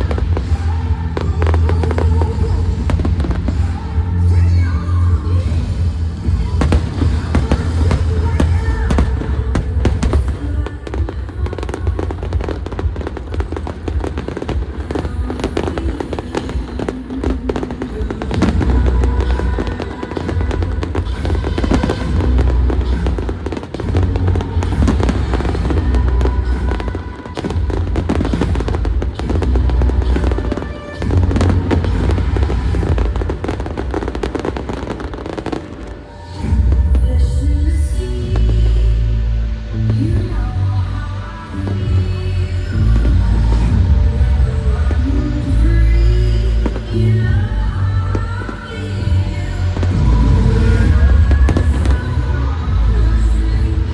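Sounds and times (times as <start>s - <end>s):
fireworks bursting and crackling: 0.0s - 37.0s, 46.4s - 53.9s
loud music soundtrack: 0.0s - 53.9s
heavy low booms: 6.4s - 11.4s.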